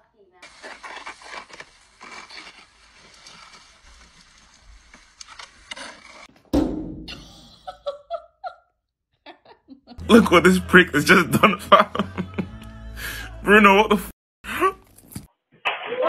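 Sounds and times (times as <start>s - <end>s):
snow crunching and scraping: 0.4s - 6.3s.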